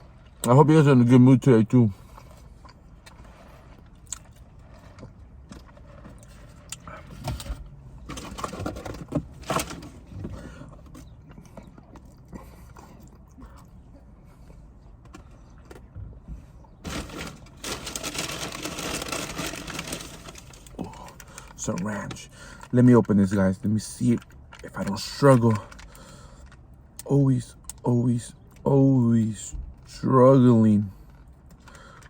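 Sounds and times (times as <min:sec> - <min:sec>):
person chewing: 0:02.0 - 0:07.1, 0:11.0 - 0:14.6
food packaging rustling: 0:16.8 - 0:21.6.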